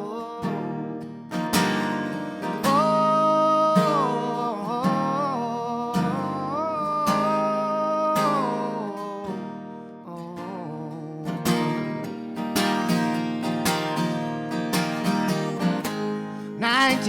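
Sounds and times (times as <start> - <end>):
acoustic guitar strumming: 0.0 - 17.0
wordless vocal melody: 2.3 - 12.2, 15.4 - 17.0.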